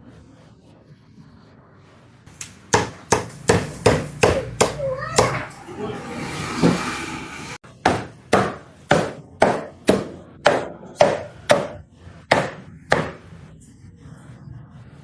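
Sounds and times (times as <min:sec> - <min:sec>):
knife chopping roasted pork: 0:02.3 - 0:07.0.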